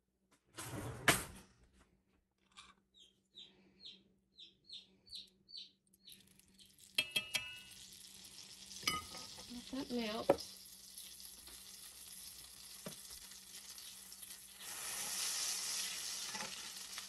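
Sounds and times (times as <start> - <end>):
bird chirping: 2.9 - 6.8
butter sizzling in oil: 6.2 - 17.0
metal utensil clinking on skillet: 7.0 - 7.9, 8.7 - 11.1, 16.1 - 17.0.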